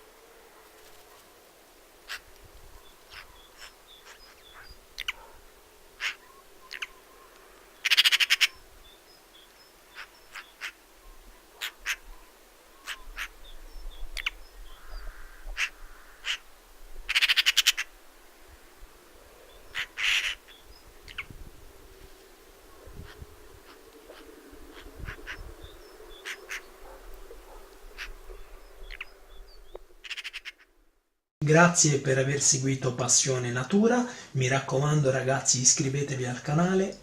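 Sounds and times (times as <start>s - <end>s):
magpie single calls and clicks: 2.0s - 2.4s, 3.1s - 5.3s, 6.0s - 8.6s, 9.4s - 10.8s, 11.6s - 12.1s, 12.8s - 13.4s, 14.1s - 16.5s, 17.1s - 17.9s, 19.7s - 21.3s, 28.9s - 29.1s, 30.0s - 30.7s
magpie rattling chatter: 2.1s - 2.3s, 3.1s - 5.3s, 6.0s - 6.9s, 7.8s - 8.6s, 11.6s - 12.1s, 14.2s - 16.4s, 17.1s - 17.9s, 19.7s - 21.3s, 23.0s - 26.7s, 30.0s - 30.7s.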